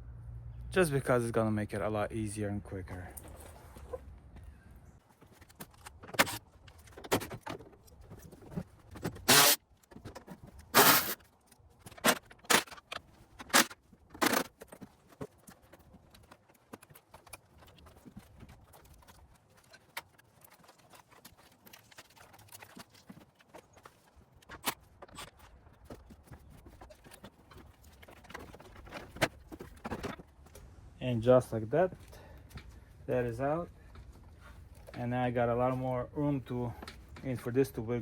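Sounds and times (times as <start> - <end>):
short rattling bursts: 9.1 - 9.6, 10.6 - 11.3.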